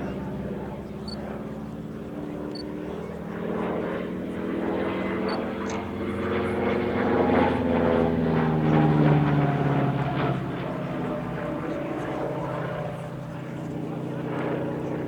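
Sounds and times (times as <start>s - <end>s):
propeller aircraft flying past: 0.0s - 15.0s.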